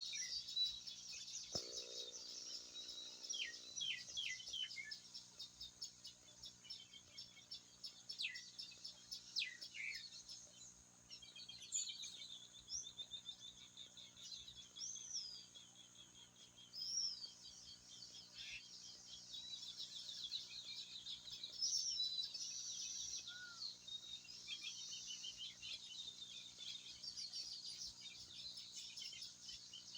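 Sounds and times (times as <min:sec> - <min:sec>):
insects buzzing: 0:00.0 - 0:11.9
birds chirping and whistling: 0:19.6 - 0:29.9.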